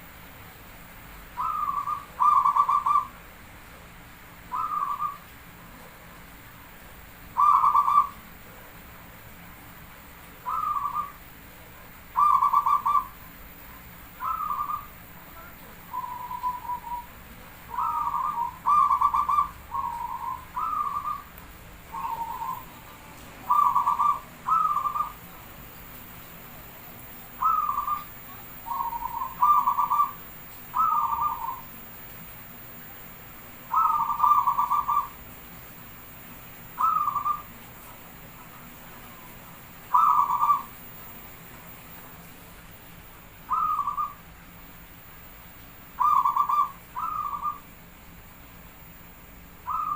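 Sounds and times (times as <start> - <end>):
dove cooing: 1.4 - 3.1, 4.5 - 5.2, 7.3 - 8.6, 10.4 - 11.2, 12.1 - 13.2, 14.2 - 17.1, 17.7 - 21.3, 21.9 - 25.4, 27.3 - 31.7, 33.7 - 35.2, 36.8 - 37.5, 38.9 - 41.1, 43.5 - 44.2, 46.0 - 47.7, 49.6 - 49.9.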